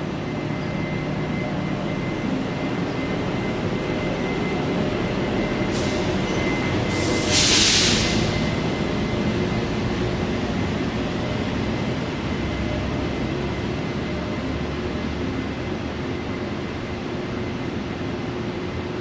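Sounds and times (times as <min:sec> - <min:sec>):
loud burst of hiss: 0:07.0 - 0:08.3.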